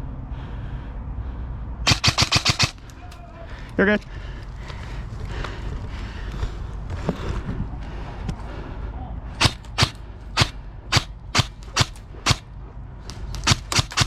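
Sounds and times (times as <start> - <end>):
airsoft rifle shots: 1.9 - 3.2, 9.4 - 12.5, 13.3 - 14.0.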